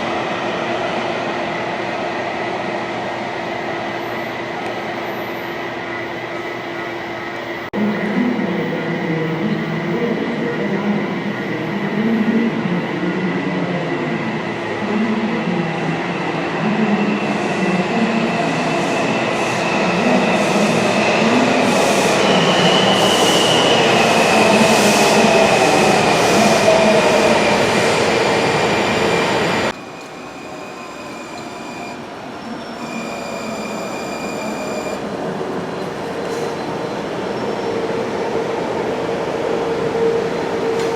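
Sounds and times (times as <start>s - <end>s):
train wheels squealing: 18.4s - 27.5s, 29.8s - 35.0s.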